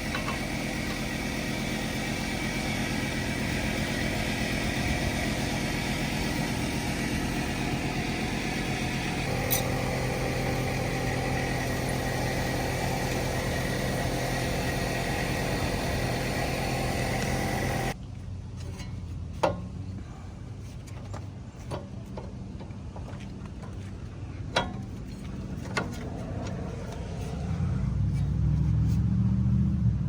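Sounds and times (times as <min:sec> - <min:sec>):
engine-like mechanical running: 0:00.0 - 0:18.0, 0:24.7 - 0:30.0
low hum: 0:00.0 - 0:18.0.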